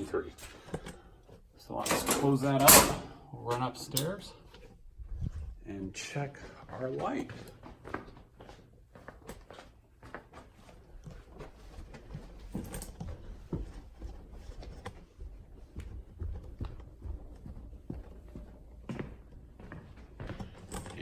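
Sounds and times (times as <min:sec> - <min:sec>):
footsteps hurrying up stairs: 0:06.3 - 0:21.0.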